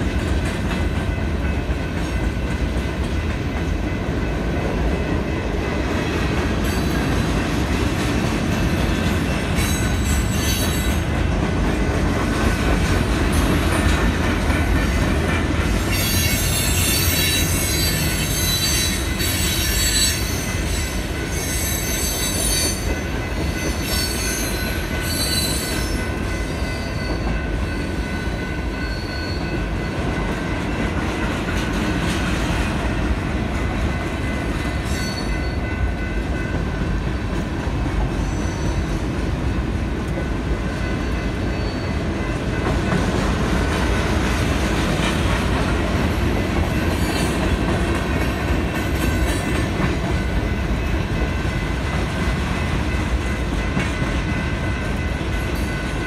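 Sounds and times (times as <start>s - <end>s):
train wheels rumbling and clattering: 0.0s - 56.0s
high wheel squeals: 15.9s - 22.9s.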